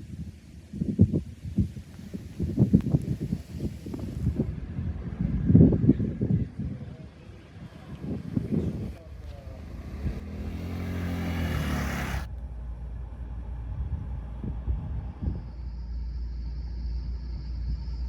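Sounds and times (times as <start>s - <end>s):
vehicle road rumble: 0.0s - 18.0s
rising hiss: 9.6s - 12.3s.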